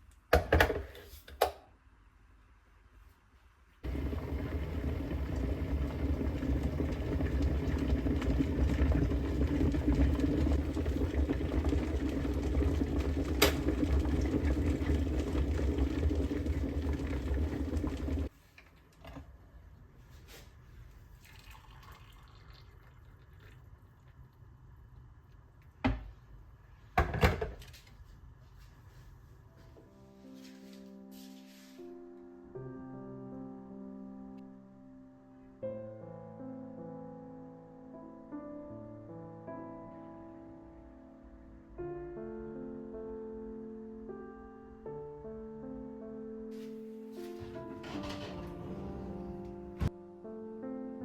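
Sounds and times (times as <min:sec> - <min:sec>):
water running from a tap: 0:03.9 - 0:18.3, 0:21.2 - 0:23.6.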